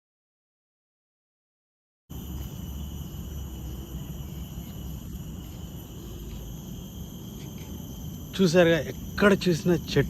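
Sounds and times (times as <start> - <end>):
shrill insect chorus: 2.1 - 10.0.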